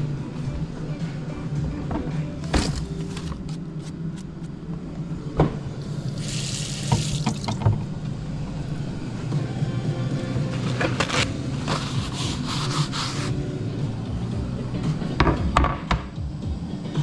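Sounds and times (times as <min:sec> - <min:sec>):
steady low hum: 0:00.0 - 0:17.0
tap water running: 0:06.0 - 0:07.8.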